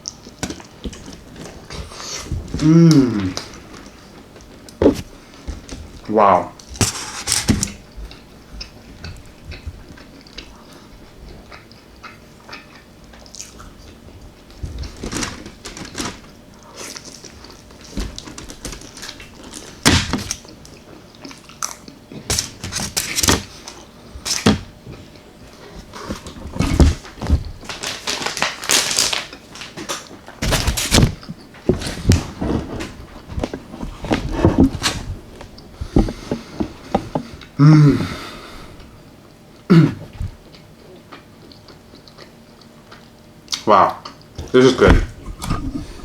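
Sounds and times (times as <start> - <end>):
wet chewing: 6.7 - 15.1, 16.6 - 22.5, 34.8 - 44.6.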